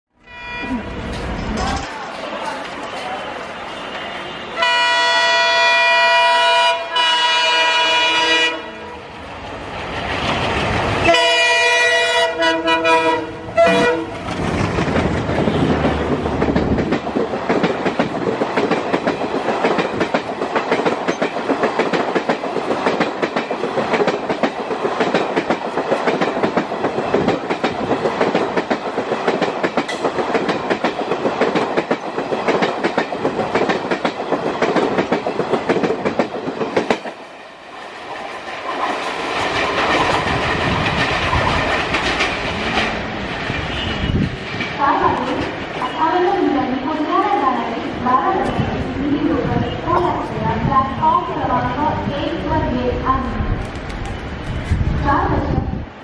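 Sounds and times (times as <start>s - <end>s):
locomotive air horn blasts: 0.2s - 1.0s, 4.6s - 9.0s, 11.1s - 14.2s
train coaches rattling: 0.5s - 55.6s
train wheels clickety-clack: 13.6s - 46.0s.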